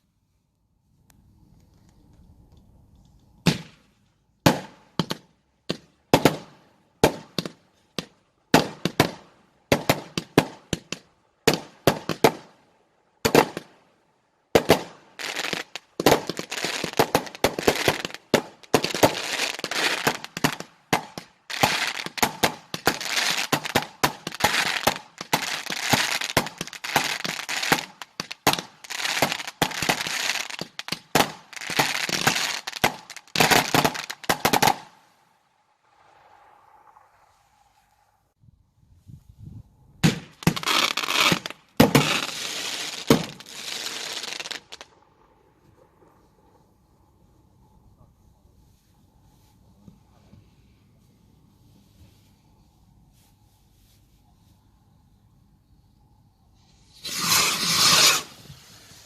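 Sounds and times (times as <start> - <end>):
fireworks bangs and crackling: 3.4 - 12.6, 13.2 - 13.8, 14.5 - 35.0, 40.0 - 46.6, 56.8 - 59.0.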